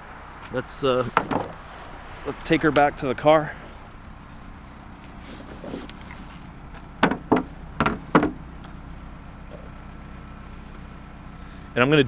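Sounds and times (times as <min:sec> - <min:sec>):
steady low hum: 0:00.0 - 0:12.0
sharp hollow knocks: 0:01.0 - 0:01.6, 0:07.0 - 0:08.4.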